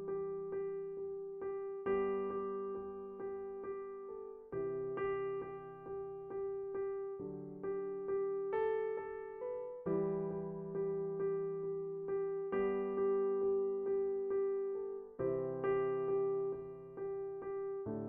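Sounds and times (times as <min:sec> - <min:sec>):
electric piano music: 0:00.0 - 0:18.0.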